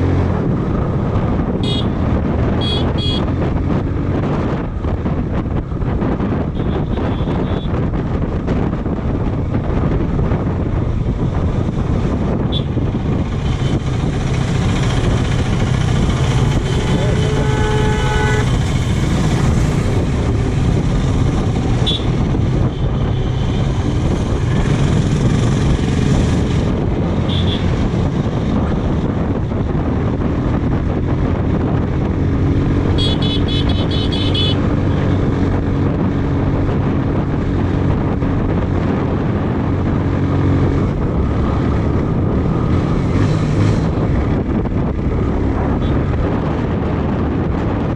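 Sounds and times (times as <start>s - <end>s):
motorcycle engine running: 0.0s - 47.9s
wind rush on microphone: 0.0s - 47.9s
vehicle horn blast: 1.6s - 2.0s, 2.6s - 3.3s, 6.6s - 7.7s, 16.4s - 18.8s, 21.8s - 22.2s, 27.3s - 27.7s, 33.0s - 34.6s
rapidly pulsing horn: 16.2s - 19.0s, 33.0s - 34.6s.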